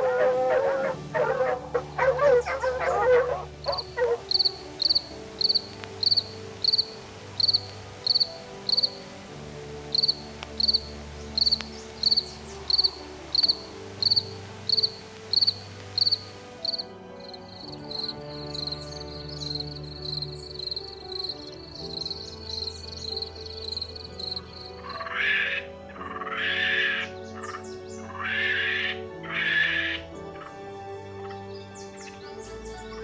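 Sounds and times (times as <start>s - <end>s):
soft background music: 0.0s - 33.0s
cricket chirping: 3.6s - 9.0s, 9.9s - 30.0s.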